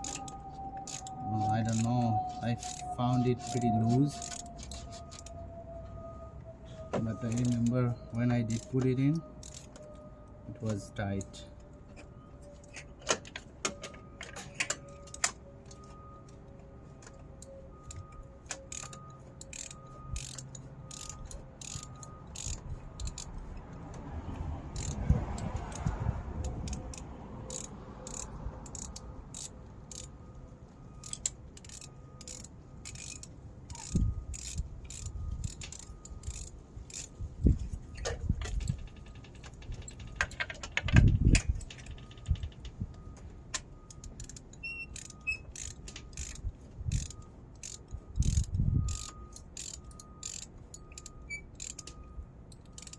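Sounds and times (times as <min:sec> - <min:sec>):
ratchet clicking: 0:00.0 - 0:05.3, 0:07.2 - 0:08.8, 0:09.4 - 0:09.9, 0:17.8 - 0:23.4, 0:24.7 - 0:30.2, 0:31.0 - 0:37.2, 0:43.9 - 0:52.9.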